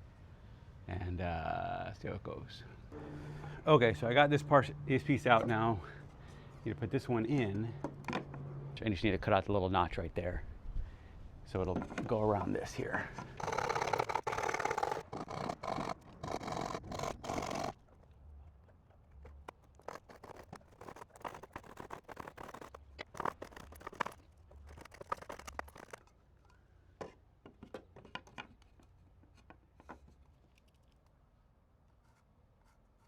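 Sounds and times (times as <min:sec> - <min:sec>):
wood scraping: 0:13.2 - 0:26.1
saw cutting wood: 0:13.4 - 0:17.8, 0:19.3 - 0:26.0.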